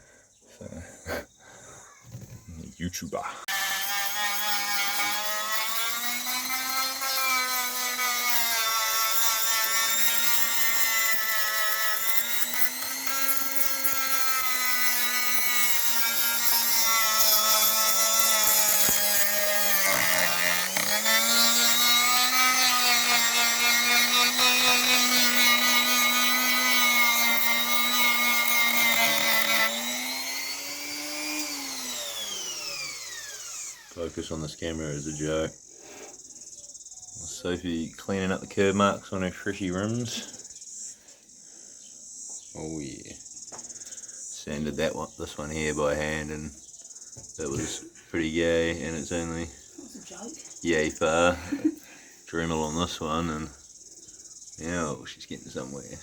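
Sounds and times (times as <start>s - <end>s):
rotary tool grinding metal: 3.4s - 34.3s.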